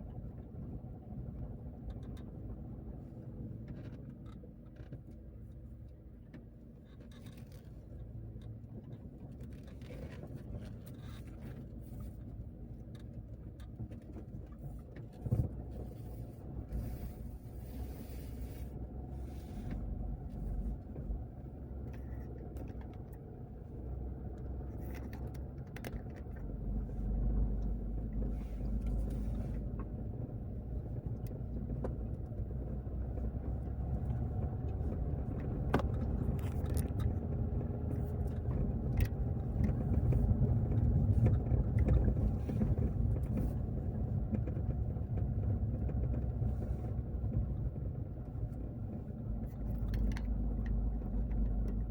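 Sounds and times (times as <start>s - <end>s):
car engine and road noise: 0.0s - 51.9s
small knocks and rattles: 33.6s - 47.6s.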